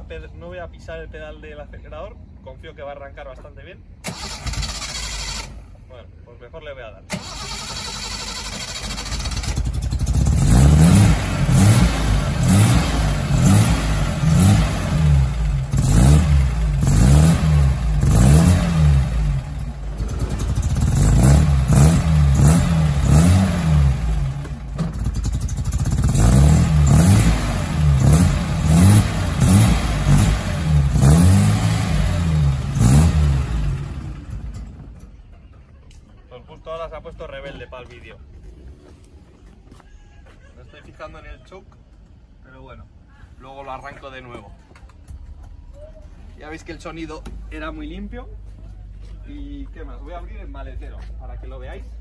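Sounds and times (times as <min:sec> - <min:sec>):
car engine revving in blips: 0:08.4 - 0:34.8.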